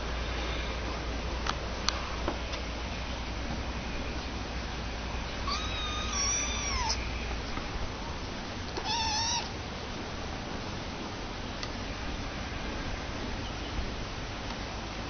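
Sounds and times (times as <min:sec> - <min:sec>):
meow-like animal calls: 0:05.4 - 0:07.0, 0:08.8 - 0:09.5.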